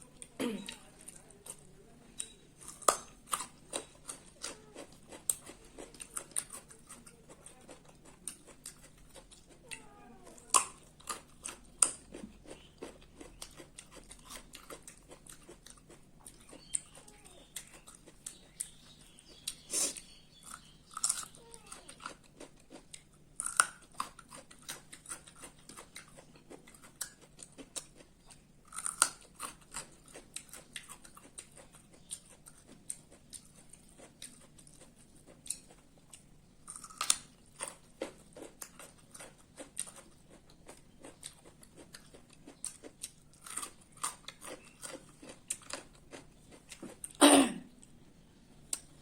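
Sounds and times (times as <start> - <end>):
person chewing food: 0.0 - 49.0.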